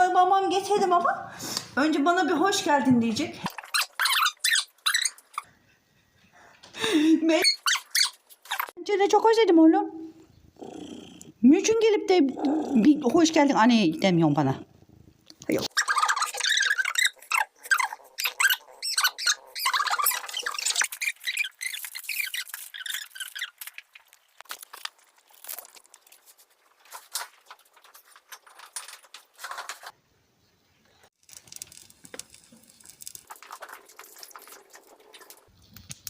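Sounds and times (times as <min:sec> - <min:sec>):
cat chewing and crunching food: 0:20.8 - 0:29.9, 0:31.2 - 0:36.0.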